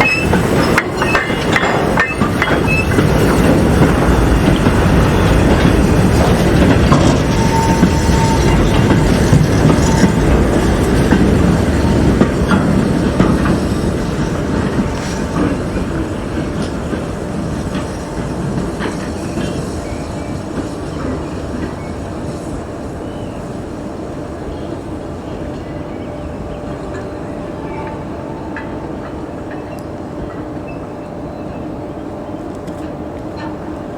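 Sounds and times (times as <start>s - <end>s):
train wheels clicking over rail joints: 0.0s - 22.7s
thin wheel squeal: 7.2s - 8.8s.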